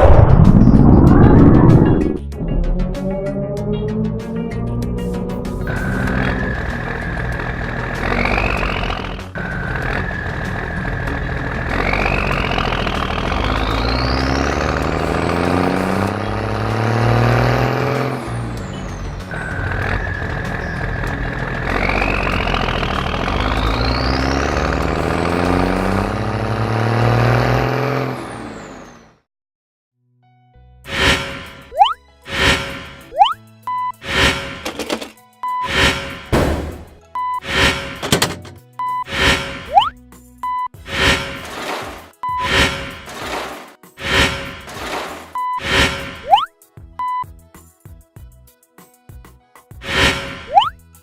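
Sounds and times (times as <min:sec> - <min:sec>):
high whine rising and falling: 0:00.0 - 0:07.1
low engine drone: 0:00.0 - 0:27.6.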